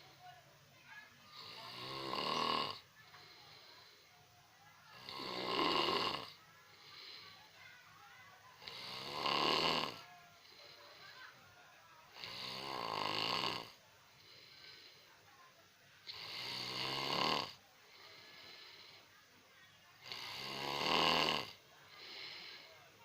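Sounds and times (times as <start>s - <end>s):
person snoring: 1.3s - 2.8s, 5.0s - 7.2s, 8.6s - 10.0s, 12.2s - 13.8s, 16.1s - 17.6s, 20.0s - 22.7s
faint breathing: 2.7s - 5.5s, 6.1s - 9.2s, 9.8s - 11.6s, 12.2s - 19.4s, 20.0s - 23.0s.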